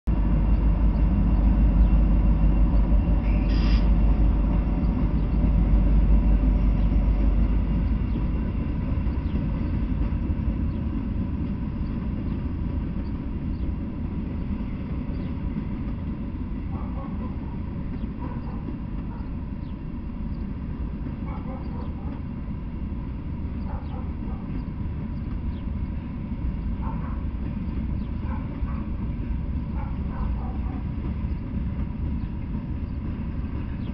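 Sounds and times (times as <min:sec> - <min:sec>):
diesel locomotive rumbling past: 0:00.0 - 0:33.9
freight cars rolling on rails: 0:00.1 - 0:33.9.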